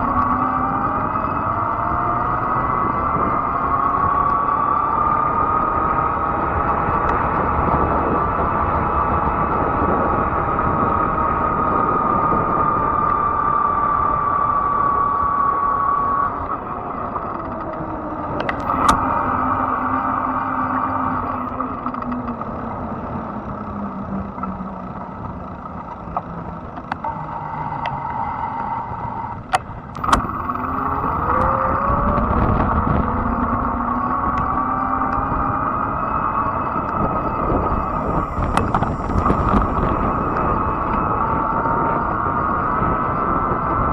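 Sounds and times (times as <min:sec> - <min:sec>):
electric bike motor whine: 0:00.0 - 0:43.9
tyres and wind rumble: 0:00.0 - 0:43.9
sharp clicks: 0:18.4 - 0:22.3, 0:29.4 - 0:35.5, 0:36.7 - 0:41.1.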